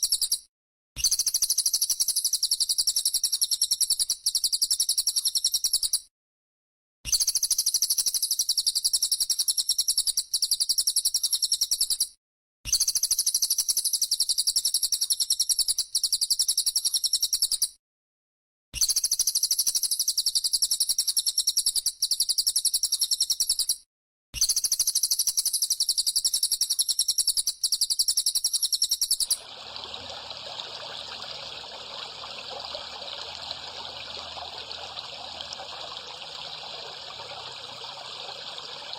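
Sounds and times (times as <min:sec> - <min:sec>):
trickling water: 0:29.2 - 0:38.9.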